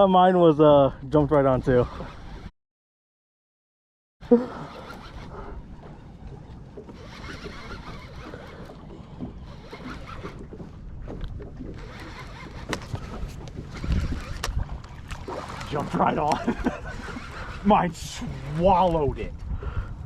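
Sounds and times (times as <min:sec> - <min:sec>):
wind rumble on microphone: 0:05.1 - 0:20.0.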